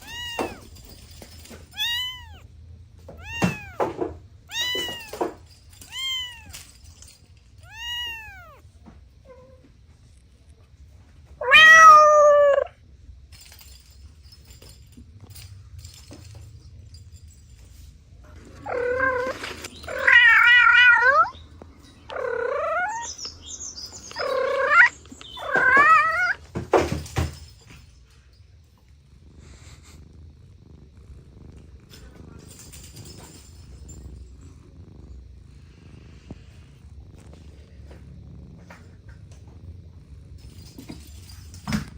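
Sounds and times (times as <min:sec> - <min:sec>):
cat meowing: 0:00.0 - 0:00.8, 0:01.7 - 0:02.5, 0:03.1 - 0:06.6, 0:07.6 - 0:08.6, 0:11.4 - 0:12.8, 0:18.6 - 0:21.4, 0:22.1 - 0:23.2, 0:24.2 - 0:26.4.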